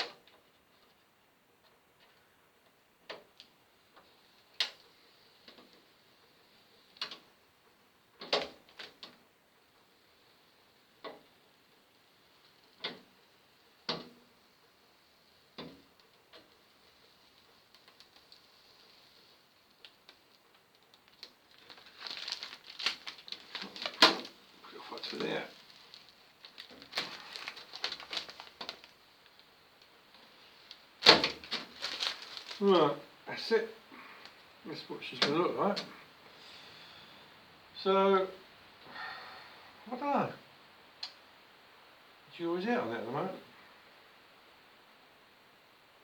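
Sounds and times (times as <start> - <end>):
plastic film peeling off metal: 17.3 - 33.0.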